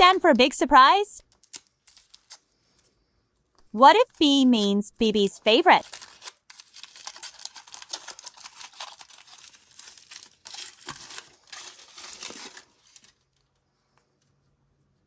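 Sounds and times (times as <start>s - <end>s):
wrapper crinkling and tearing: 1.2s - 2.5s, 5.8s - 13.5s.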